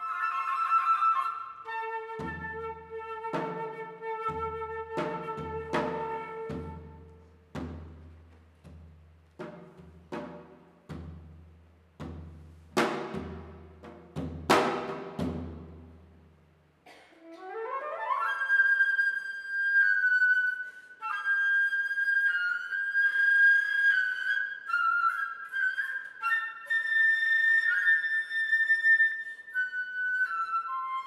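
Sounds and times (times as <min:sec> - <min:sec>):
flute playing: 0:00.0 - 0:07.3, 0:17.2 - 0:31.0.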